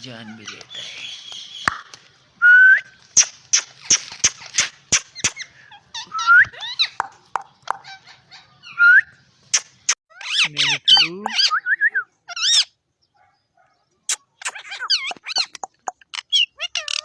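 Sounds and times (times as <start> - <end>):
parakeet squawks: 9.5 - 11.6, 12.3 - 12.8, 14.2 - 17.0
parakeet chirps: 14.1 - 17.0.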